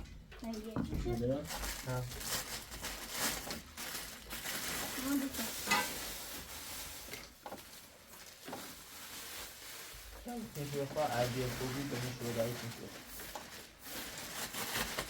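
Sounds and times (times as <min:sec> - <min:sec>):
food sizzling in a pot: 0:05.1 - 0:07.4
stirring scraping strokes: 0:05.3 - 0:07.6.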